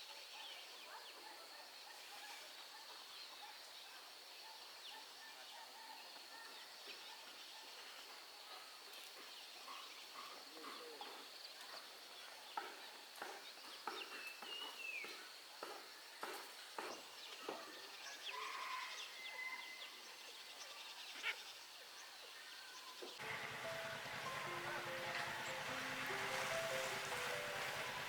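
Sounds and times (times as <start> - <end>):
bird calls: 23.2 - 28.0.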